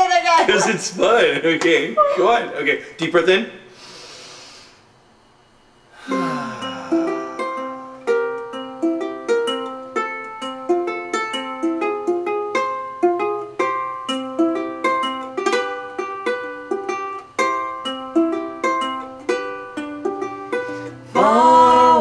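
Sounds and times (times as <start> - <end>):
ukulele fingerpicked arpeggio: 6.6 - 22.0.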